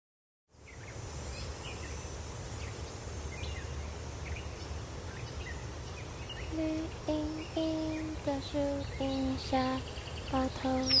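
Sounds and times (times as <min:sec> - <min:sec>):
birds chirping: 0:02.6 - 0:11.0
high insect drone: 0:05.1 - 0:11.0.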